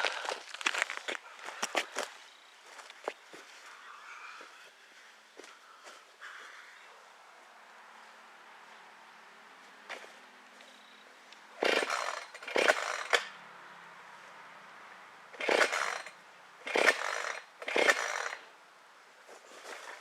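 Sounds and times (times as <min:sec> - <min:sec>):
chainsaw revving: 0:11.6 - 0:13.4, 0:15.4 - 0:18.5.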